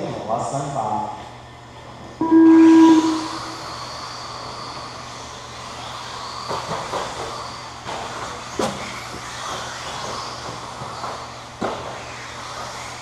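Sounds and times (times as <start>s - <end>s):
electronic start tone: 2.2s - 3.7s
rc trucks motor whine: 2.2s - 13.0s.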